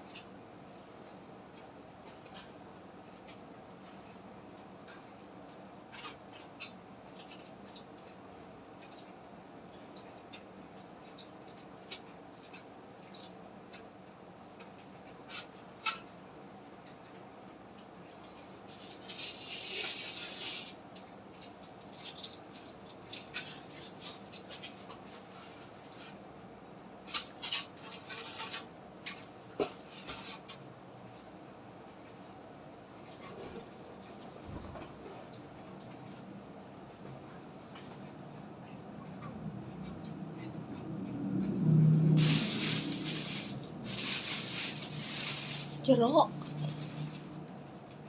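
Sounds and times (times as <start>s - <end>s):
packaging rustling: 42.2s - 45.8s.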